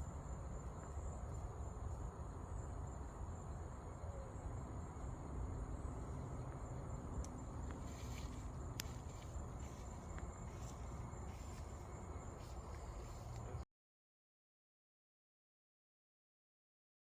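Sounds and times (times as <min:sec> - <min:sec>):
crickets trilling: 0:00.0 - 0:13.6.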